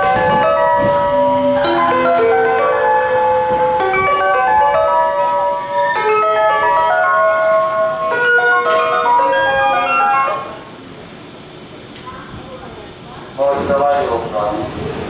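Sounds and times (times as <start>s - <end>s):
electronic chime melody: 0.0s - 10.6s.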